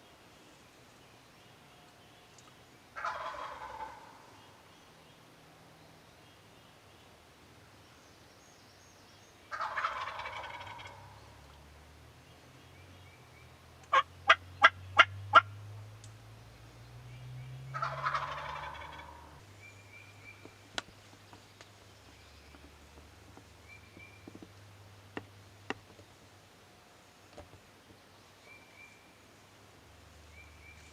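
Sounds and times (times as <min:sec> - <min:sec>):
turkey gobbling: 0:03.0 - 0:04.2, 0:09.5 - 0:11.2, 0:13.9 - 0:15.5, 0:17.7 - 0:19.4.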